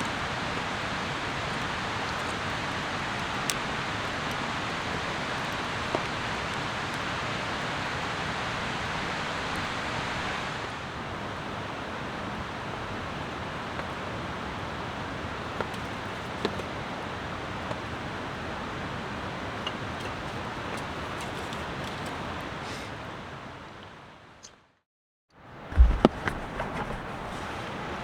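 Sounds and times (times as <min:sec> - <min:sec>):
sharp ticks of rain: 0:00.0 - 0:10.7, 0:11.8 - 0:16.7
steady rain hiss: 0:00.0 - 0:24.4.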